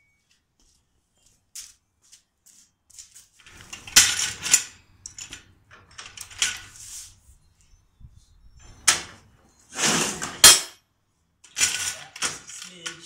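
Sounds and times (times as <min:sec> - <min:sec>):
metal parts clicking and clanking: 0:03.4 - 0:06.8, 0:09.8 - 0:10.8, 0:11.4 - 0:13.0.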